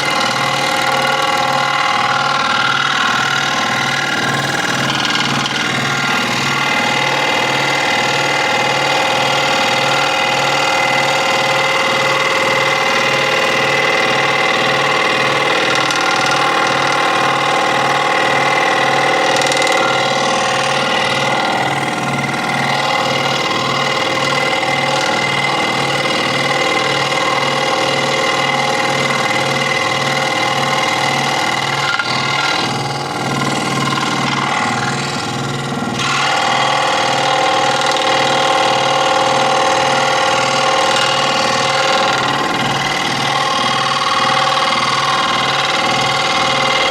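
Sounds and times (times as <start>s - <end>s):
scroll saw running: 0.0s - 46.9s.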